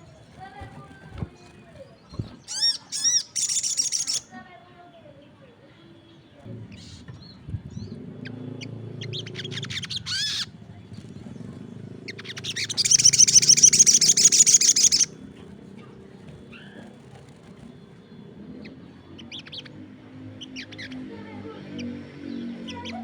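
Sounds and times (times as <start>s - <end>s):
songbird chirping: 0.0s - 23.0s
rapid bird trill: 2.4s - 4.3s, 8.2s - 15.3s.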